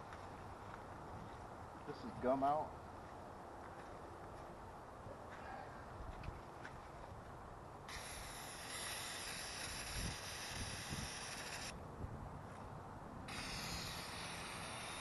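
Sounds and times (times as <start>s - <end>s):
aerosol can spraying: 7.9s - 11.7s, 13.3s - 15.0s.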